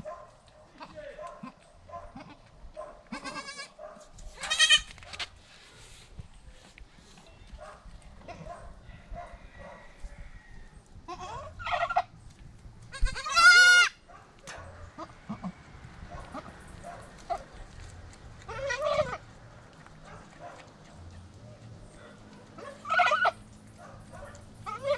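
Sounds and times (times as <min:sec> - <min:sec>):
goat bleating: 0:00.8 - 0:02.5, 0:03.1 - 0:03.7, 0:04.4 - 0:04.9, 0:11.1 - 0:12.0, 0:12.9 - 0:14.0, 0:15.0 - 0:15.6, 0:18.4 - 0:19.2, 0:22.8 - 0:23.4, 0:24.6 - 0:24.9.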